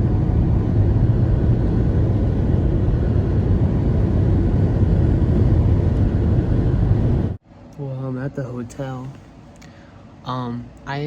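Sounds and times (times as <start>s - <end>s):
car driving low rumble: 0.0s - 7.4s
road and wind noise: 0.0s - 11.0s.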